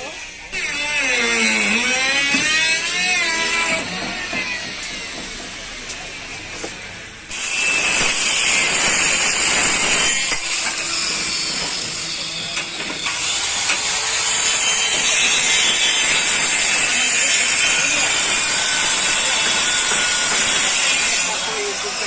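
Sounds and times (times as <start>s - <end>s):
workshop tool hissing rasp: 7.3s - 22.0s.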